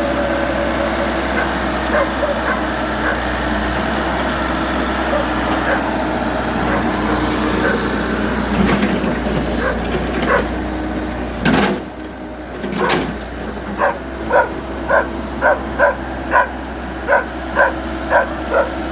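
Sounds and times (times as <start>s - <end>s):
diesel engine running: 0.0s - 18.9s
dog barking: 1.4s - 3.3s, 5.0s - 6.0s, 6.6s - 7.9s, 9.6s - 10.6s, 13.8s - 18.9s.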